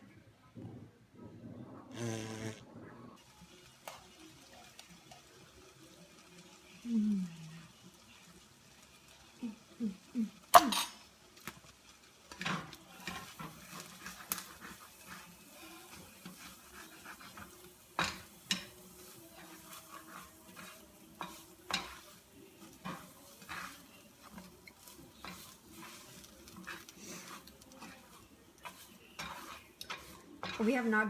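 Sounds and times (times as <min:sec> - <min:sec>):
spoon stirring in cooking pot: 0:10.4 - 0:31.0.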